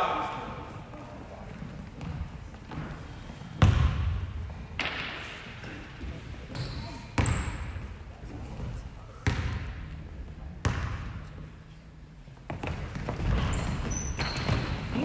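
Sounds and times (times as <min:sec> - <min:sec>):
basketball bouncing on gym floor: 0:03.6 - 0:05.2, 0:06.5 - 0:07.8, 0:09.2 - 0:10.0, 0:10.6 - 0:11.2, 0:12.5 - 0:14.9.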